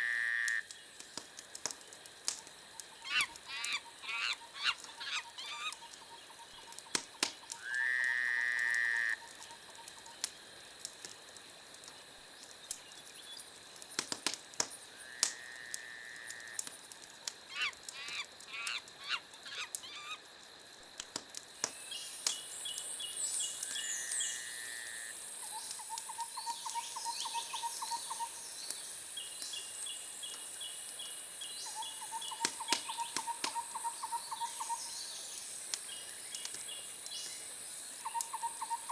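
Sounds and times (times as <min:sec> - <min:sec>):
wood fire crackling: 0:00.5 - 0:24.2, 0:24.9 - 0:38.6
drawn-out bird calls: 0:03.0 - 0:06.8.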